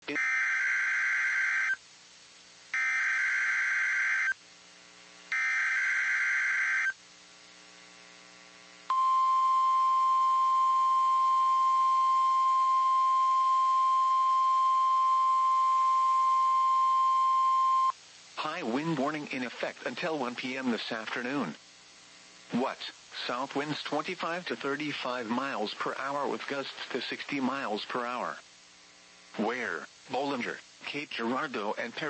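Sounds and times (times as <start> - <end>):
steady warning alarm tone: 0.1 - 1.8, 2.8 - 4.4, 5.3 - 7.0, 8.9 - 17.9.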